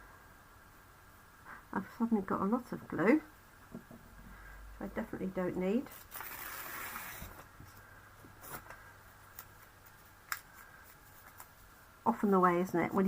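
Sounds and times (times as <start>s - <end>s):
paper rustling: 5.9s - 7.8s, 8.4s - 12.3s.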